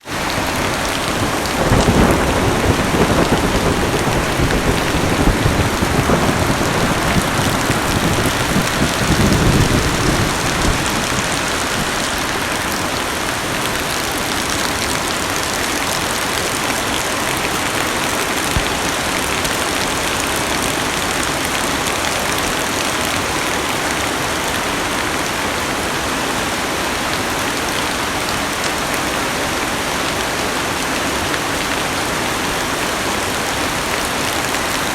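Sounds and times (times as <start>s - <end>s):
low thunder rumble: 0.1s - 13.6s
heavy rain on car roof: 0.1s - 34.9s.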